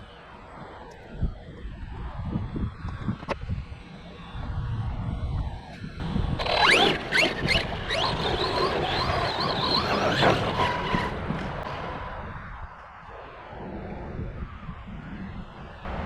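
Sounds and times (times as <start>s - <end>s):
electric motor whining: 6.0s - 11.2s.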